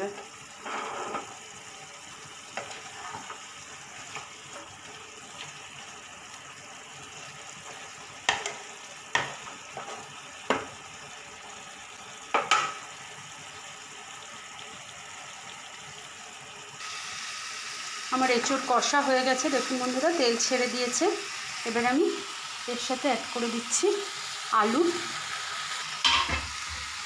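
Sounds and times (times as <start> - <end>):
food sizzling in oil: 0.0 - 27.0
spatula knocking and scraping pan: 7.6 - 10.8, 12.3 - 12.8, 26.0 - 26.9.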